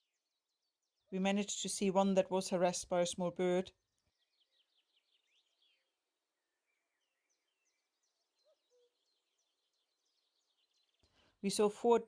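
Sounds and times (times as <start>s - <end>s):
small birds chirping: 3.8s - 6.0s, 6.6s - 11.7s.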